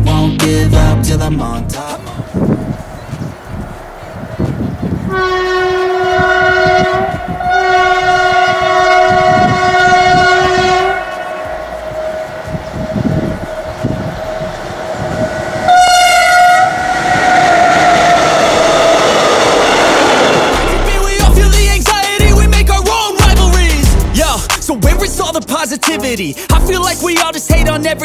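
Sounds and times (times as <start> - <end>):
locomotive horn blasts: 5.1 - 18.4.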